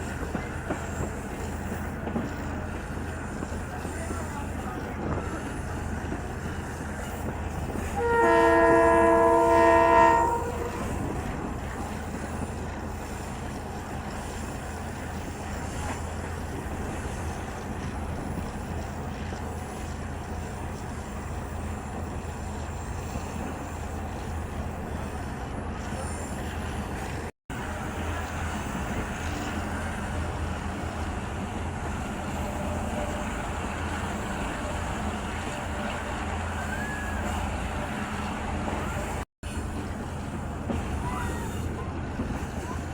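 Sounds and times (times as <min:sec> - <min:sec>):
train rumbling: 0:00.0 - 0:42.9
train horn: 0:07.8 - 0:11.2.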